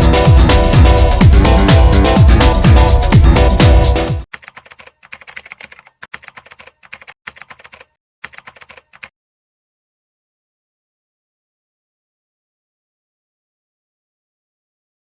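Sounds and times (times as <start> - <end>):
electronic dance music: 0.0 - 4.3
computer keyboard typing: 4.2 - 9.1.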